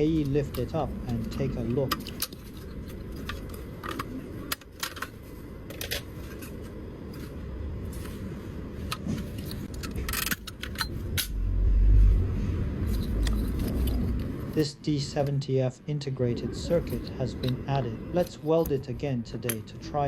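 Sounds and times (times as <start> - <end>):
plastic and metal parts clicking: 0.1 - 6.1
low rumble: 10.8 - 14.6.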